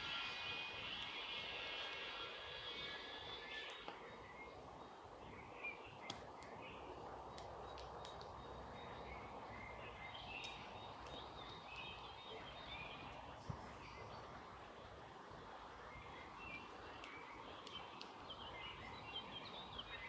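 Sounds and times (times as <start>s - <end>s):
faint songbird calls: 0.0s - 15.0s
sharp clicks: 7.3s - 8.4s, 16.9s - 18.2s.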